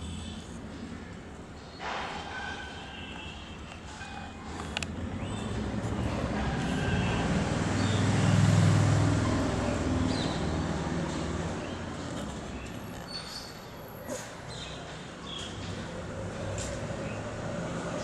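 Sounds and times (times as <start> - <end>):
passing vehicle engine rumble: 3.6 - 14.5, 15.4 - 18.0.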